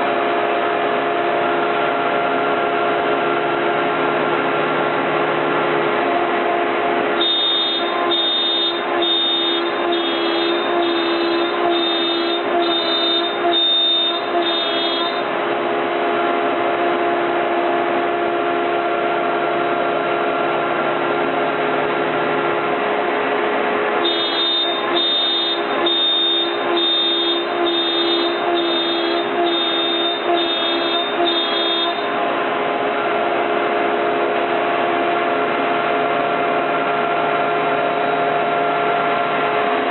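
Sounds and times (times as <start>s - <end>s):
short high-pitched tone: 7.2s - 15.3s
cnc router running: 7.2s - 15.7s.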